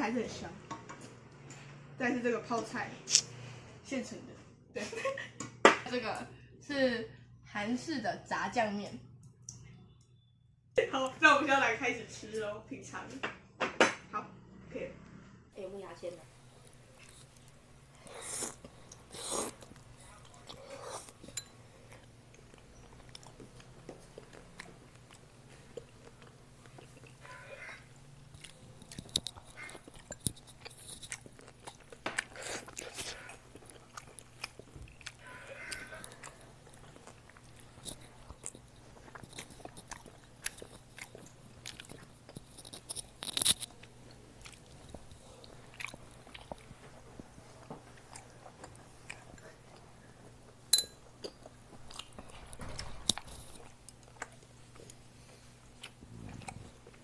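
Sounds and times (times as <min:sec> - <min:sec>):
chewing and mouth smacks: 0:16.6 - 0:57.0.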